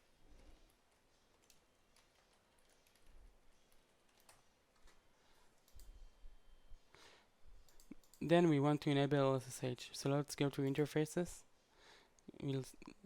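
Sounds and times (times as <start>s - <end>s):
faint keyboard typing: 0.2s - 6.1s, 7.6s - 8.5s.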